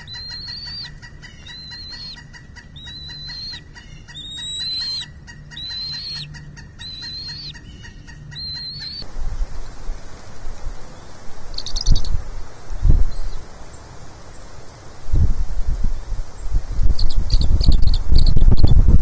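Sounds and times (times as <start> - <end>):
eagle chick high thin calls: 0.0 - 9.0.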